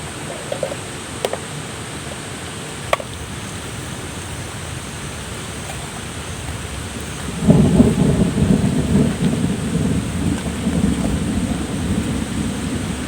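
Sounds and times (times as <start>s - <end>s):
thunder rumbling: 3.1s - 13.0s.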